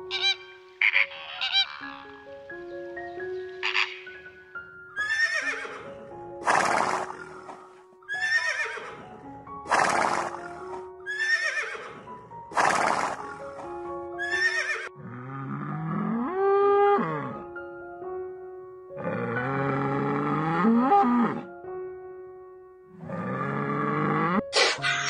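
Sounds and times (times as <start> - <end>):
background music with held tones: 0.0 - 25.0
horse neighing: 0.1 - 2.1, 3.6 - 4.1, 5.0 - 13.6, 14.2 - 17.4, 23.0 - 25.0.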